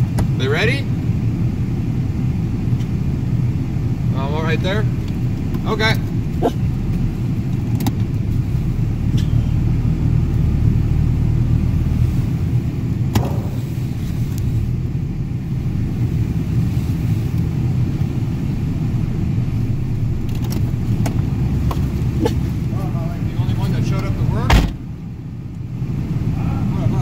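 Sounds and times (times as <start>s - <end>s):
car engine rumble: 0.0s - 27.0s.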